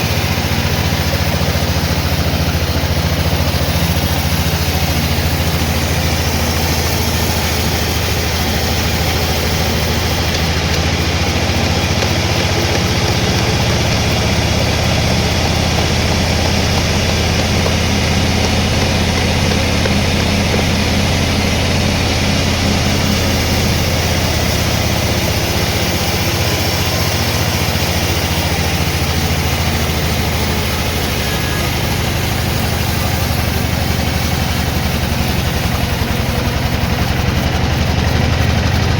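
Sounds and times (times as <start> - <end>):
loud mechanical noise: 0.0 - 38.9
low motor hum: 0.0 - 38.9.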